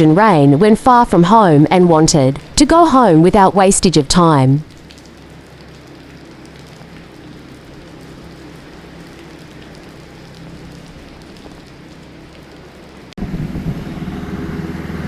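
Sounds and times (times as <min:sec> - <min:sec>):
low hum: 0:00.0 - 0:15.0
rain falling: 0:00.0 - 0:15.0.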